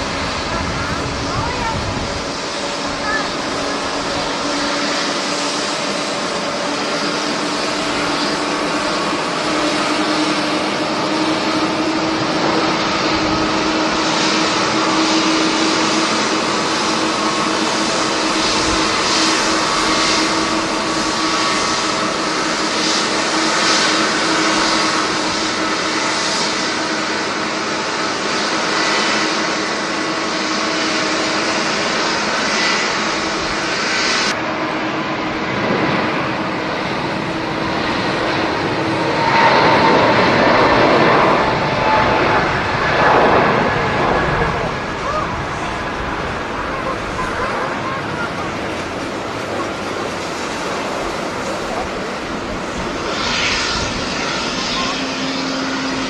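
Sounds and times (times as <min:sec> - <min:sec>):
jet engines running: 0:00.0 - 0:56.0.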